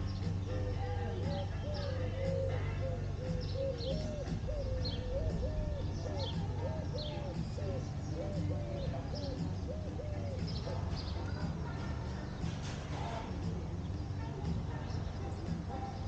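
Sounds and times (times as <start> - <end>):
bird hooting: 0.0 - 12.4.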